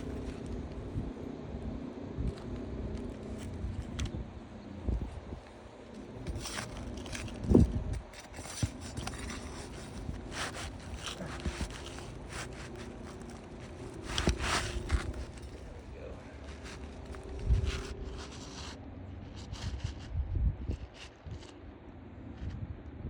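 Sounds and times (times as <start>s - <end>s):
scraping and tapping on roof shingles: 5.4s - 20.1s.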